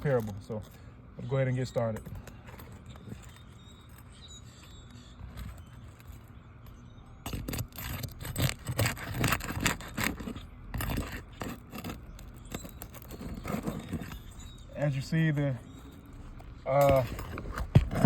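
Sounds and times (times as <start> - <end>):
shingles scraping and crackling: 1.6 - 18.0.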